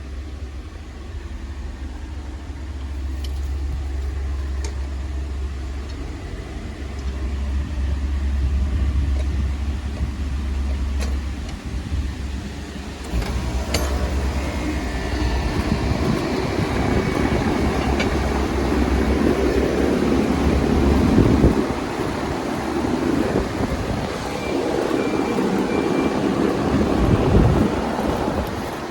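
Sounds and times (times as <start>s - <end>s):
rushing noise: 11.2s - 28.9s.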